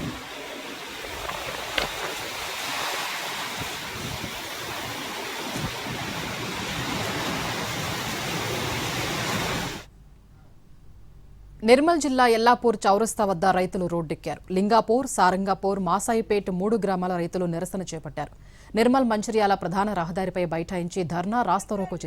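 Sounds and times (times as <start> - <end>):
wind buffeting microphone: 0.0 - 9.8
heavy rain: 0.0 - 9.9.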